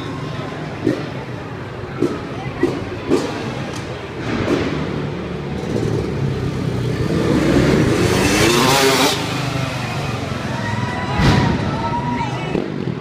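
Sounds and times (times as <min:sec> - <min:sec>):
dirt bike engine revving: 0:02.6 - 0:10.5.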